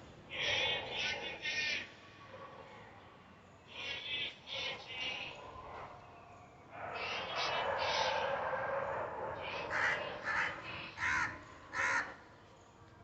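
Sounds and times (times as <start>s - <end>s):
parrots giving harsh calls: 9.6s - 12.2s.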